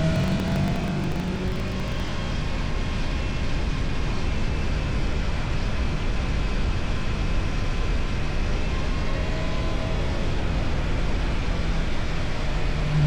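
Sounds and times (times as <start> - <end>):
motorcycle exhaust running: 0.0 - 2.3.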